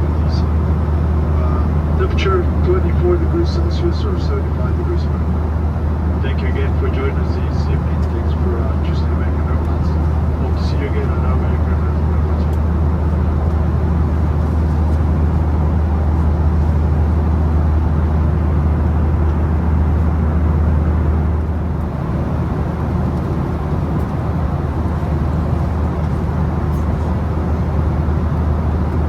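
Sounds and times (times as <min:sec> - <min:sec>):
aircraft engines droning: 0:00.0 - 0:29.0.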